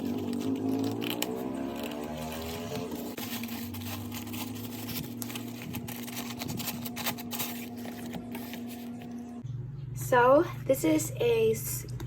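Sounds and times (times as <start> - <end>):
box crackling while handled: 0.0 - 9.2
low electrical hum: 0.0 - 12.0.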